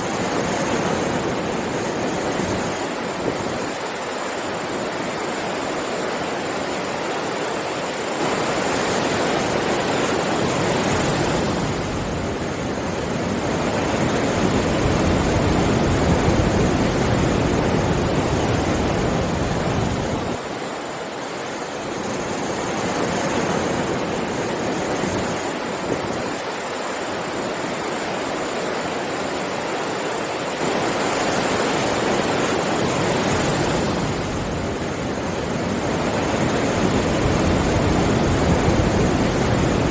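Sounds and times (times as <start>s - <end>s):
sea waves washing onto beach: 0.0s - 39.9s.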